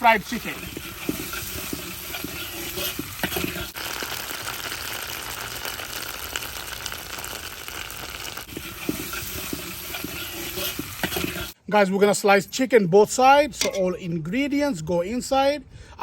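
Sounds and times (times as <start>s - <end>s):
chicken sizzling in hot oil: 0.0s - 11.6s.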